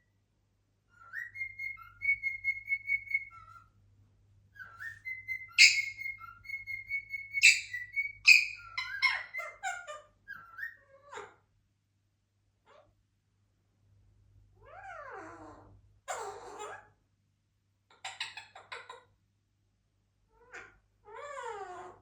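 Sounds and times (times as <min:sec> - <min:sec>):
cockatiel whistling: 0:00.9 - 0:03.7, 0:04.5 - 0:09.7, 0:10.3 - 0:10.8
loud sharp bird calls: 0:04.6 - 0:10.7.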